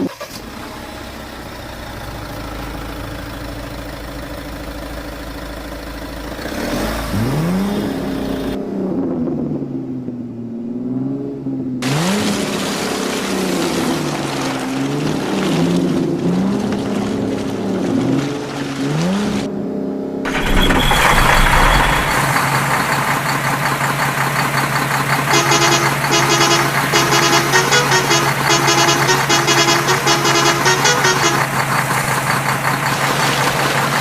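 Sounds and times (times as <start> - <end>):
engine revving: 6.3 - 8.6, 20.2 - 34.0
steady engine running: 20.3 - 34.0
short horn beeps: 25.3 - 31.5.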